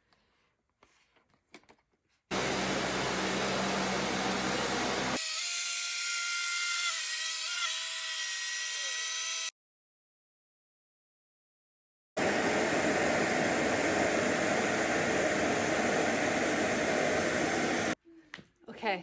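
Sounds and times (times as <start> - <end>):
vacuum cleaner running: 2.3 - 5.2, 12.2 - 18.0.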